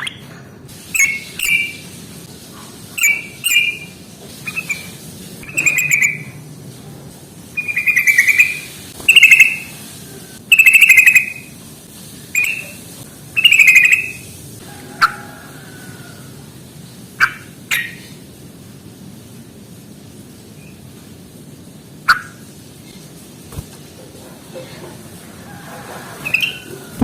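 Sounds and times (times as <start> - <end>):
bird chattering calls: 1.0 - 1.8, 3.0 - 6.4, 7.6 - 9.8, 10.5 - 11.5, 12.4 - 12.8, 13.4 - 14.2, 17.2 - 18.1, 22.1 - 22.4.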